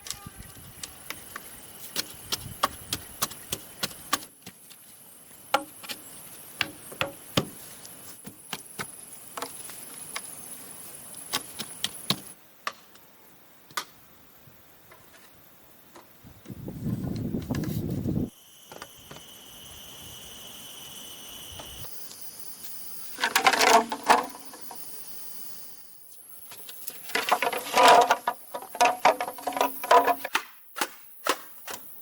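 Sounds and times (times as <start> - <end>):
forest insects buzzing: 0.0 - 12.4, 14.2 - 30.3
hand tool striking bamboo: 1.9 - 4.6, 5.5 - 7.6, 27.1 - 31.9.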